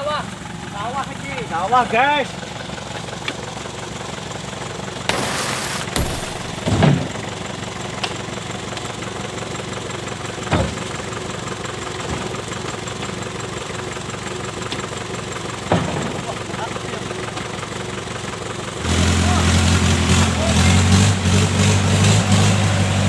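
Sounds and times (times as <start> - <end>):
diesel engine idling: 0.0 - 23.0
heavy thumps: 5.1 - 7.2.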